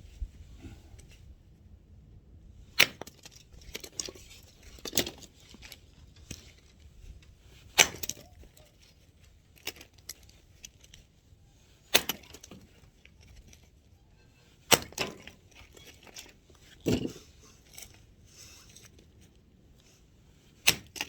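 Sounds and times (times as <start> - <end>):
axe chopping firewood: 2.8 - 3.4, 7.7 - 8.4, 11.9 - 12.6, 14.7 - 15.3, 20.6 - 21.0.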